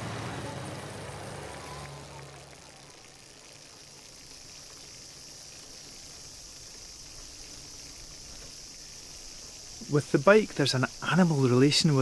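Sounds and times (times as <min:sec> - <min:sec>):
low background hiss: 0:00.0 - 0:12.0
high-pitched insect chirring: 0:03.5 - 0:12.0.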